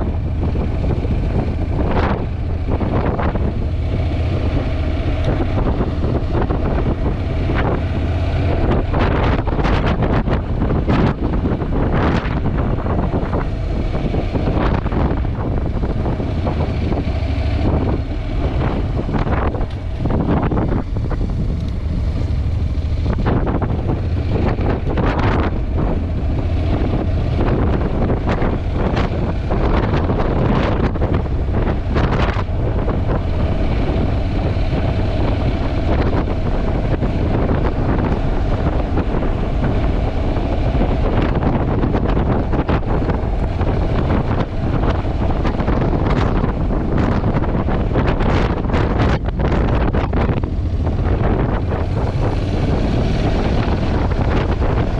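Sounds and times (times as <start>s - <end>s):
motorcycle engine and road noise: 0.0s - 54.9s
wind buffeting microphone: 0.0s - 54.9s.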